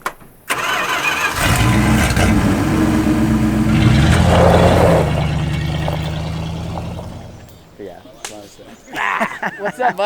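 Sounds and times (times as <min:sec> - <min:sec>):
truck engine revving and idling: 0:00.5 - 0:07.8.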